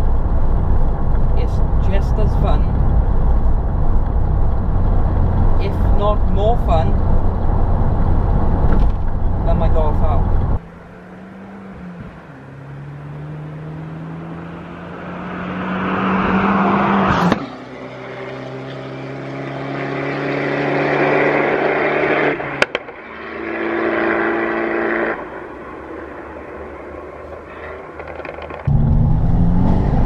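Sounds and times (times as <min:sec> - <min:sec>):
car engine accelerating hard: 0:06.9 - 0:25.2, 0:28.7 - 0:30.0
exhaust crack at gear shifts: 0:27.9 - 0:30.0.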